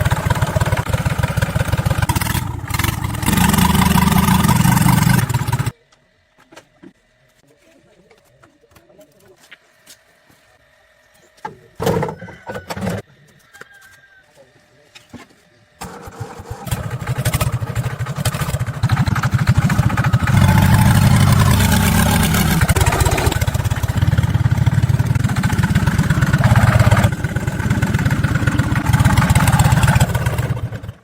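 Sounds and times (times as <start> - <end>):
tractor engine running: 0.0 - 5.7, 15.9 - 31.0.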